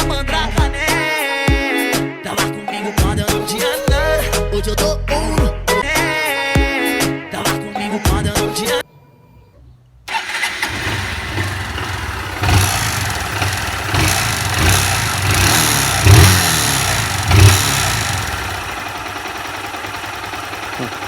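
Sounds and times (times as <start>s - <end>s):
engine throttle blips: 10.1s - 21.0s
motorcycle engine idling: 10.1s - 21.0s.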